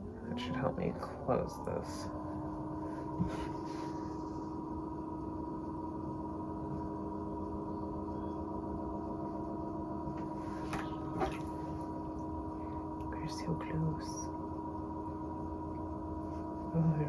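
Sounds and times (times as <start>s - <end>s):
potter's wheel motor humming: 0.0s - 17.0s.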